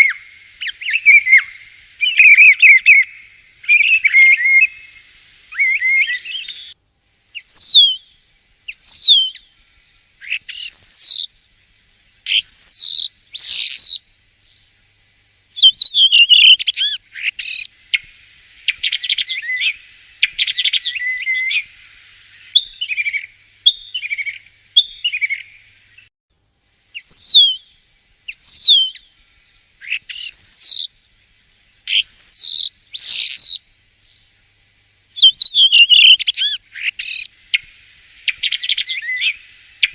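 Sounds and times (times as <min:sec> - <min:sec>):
starling singing: 0:00.0 - 0:06.8, 0:10.2 - 0:11.3, 0:12.3 - 0:14.0, 0:15.6 - 0:17.7, 0:27.0 - 0:27.6, 0:28.3 - 0:29.0, 0:29.8 - 0:30.9, 0:31.9 - 0:33.6, 0:35.2 - 0:37.3.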